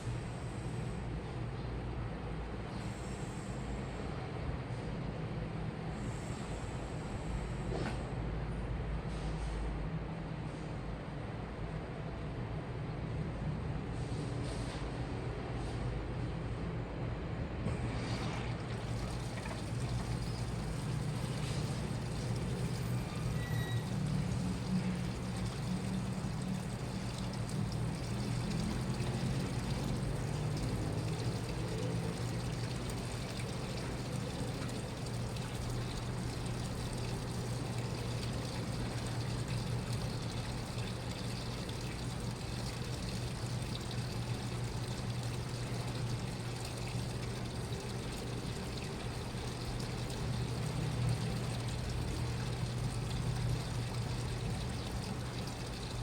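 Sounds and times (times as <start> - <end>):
washing machine running: 17.5 - 56.0
water moving in drum: 17.7 - 56.0.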